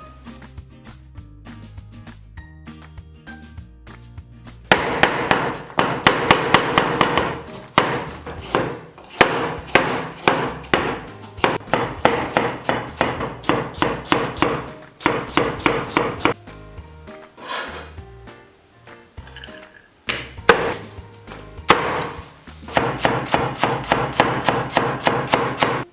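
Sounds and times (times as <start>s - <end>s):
knife chopping on wooden board: 4.7s - 16.4s, 20.5s - 20.9s, 21.7s - 25.9s.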